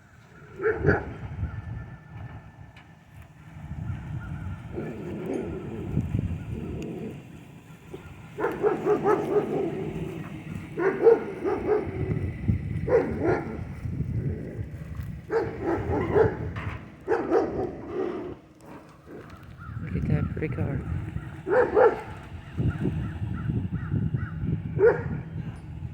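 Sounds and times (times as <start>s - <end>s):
dog barking: 0.6s - 1.7s, 7.9s - 12.2s, 12.8s - 13.7s, 15.3s - 18.4s, 20.9s - 22.2s, 24.2s - 25.3s.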